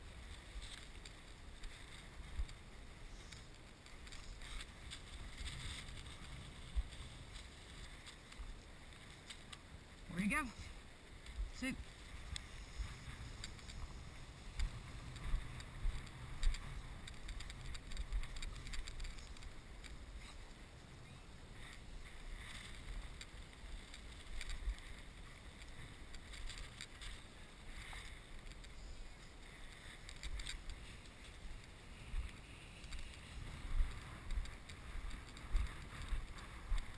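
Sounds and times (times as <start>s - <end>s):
rustles and crackles: 0.0s - 36.9s
wind buffeting microphone: 29.0s - 36.9s.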